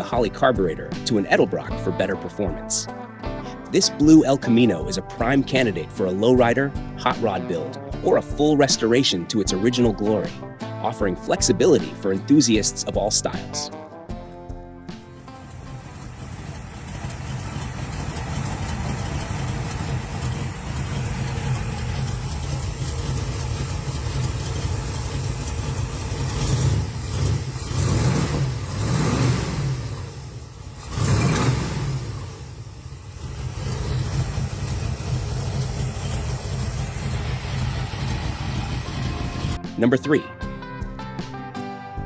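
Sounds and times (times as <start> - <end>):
car engine idling and revving: 14.9 - 39.7.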